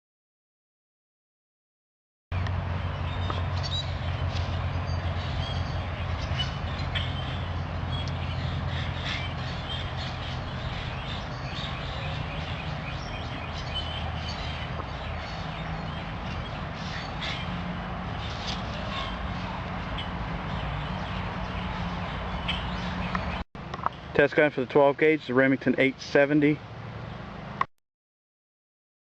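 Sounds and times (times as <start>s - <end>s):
small birds chirping: 2.4s - 24.2s.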